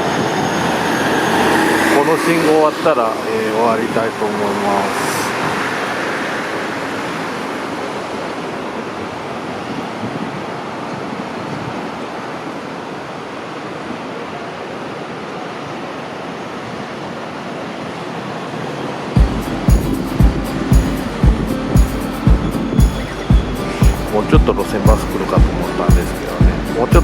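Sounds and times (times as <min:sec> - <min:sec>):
city road traffic: 0:00.0 - 0:09.5, 0:19.0 - 0:27.0.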